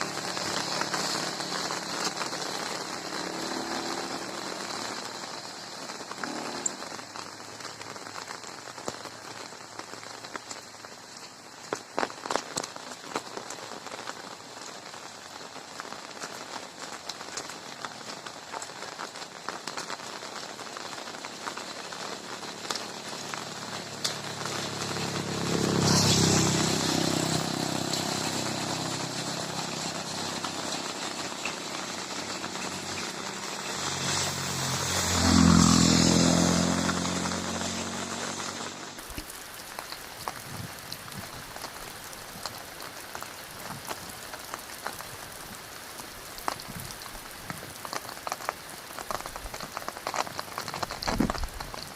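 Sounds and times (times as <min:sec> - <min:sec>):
passing vehicle engine: 0:00.0 - 0:05.5, 0:23.2 - 0:39.0
steady rain falling: 0:00.0 - 0:51.9.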